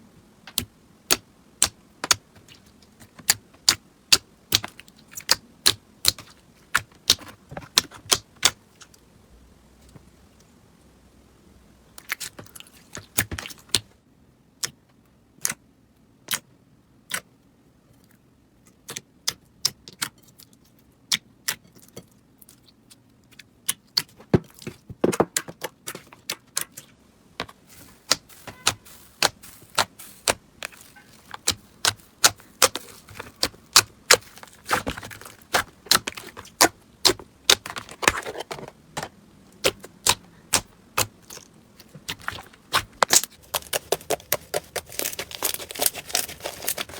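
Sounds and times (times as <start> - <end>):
slime crackling and popping: 27.8 - 38.2, 39.6 - 46.9.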